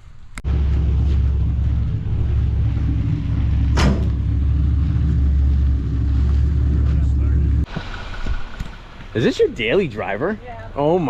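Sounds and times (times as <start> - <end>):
car engine idling: 0.4 - 7.7.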